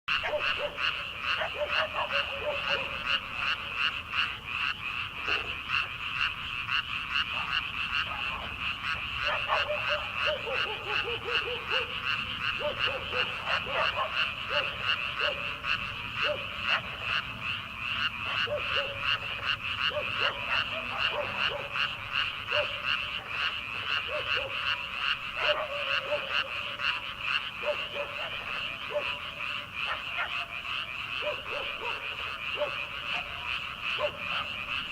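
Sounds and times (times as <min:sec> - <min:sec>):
frogs chorus high pulsing: 0:00.1 - 0:34.9
low frog croaks: 0:00.1 - 0:34.9.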